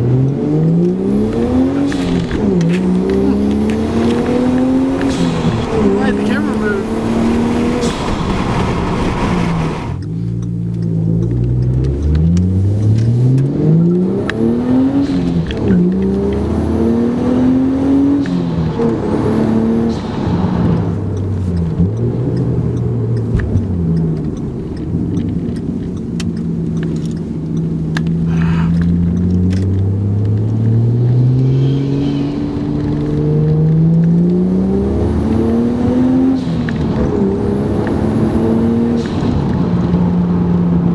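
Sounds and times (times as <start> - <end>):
car engine accelerating: 0.0 - 40.9
turbo whistle: 31.3 - 32.6.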